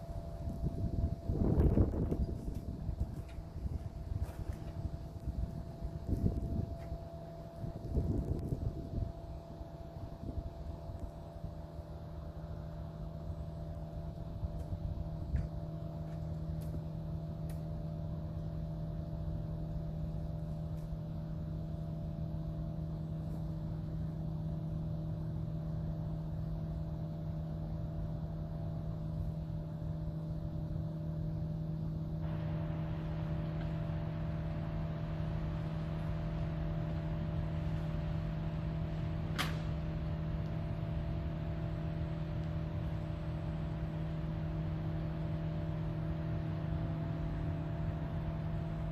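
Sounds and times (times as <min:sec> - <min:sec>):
low mechanical hum: 0:00.0 - 0:48.9
sharp click: 0:39.3 - 0:39.8.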